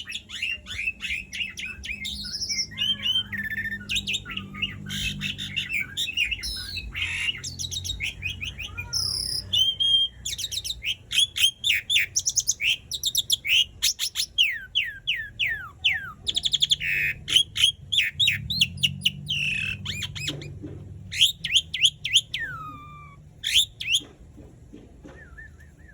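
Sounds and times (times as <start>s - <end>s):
starling whistles and chattering: 0.0s - 24.2s, 25.0s - 25.9s.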